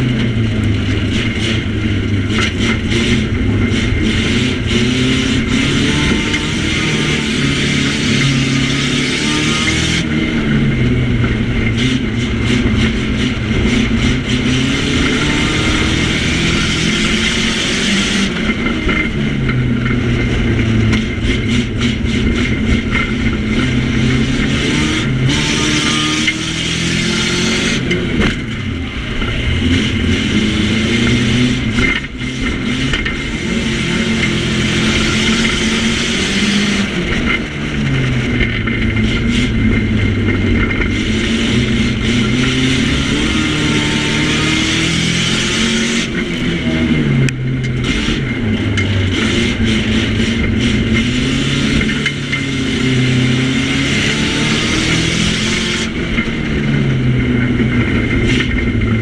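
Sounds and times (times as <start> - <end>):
car engine revving: 0.0 - 59.0
road and wind noise: 0.0 - 59.0.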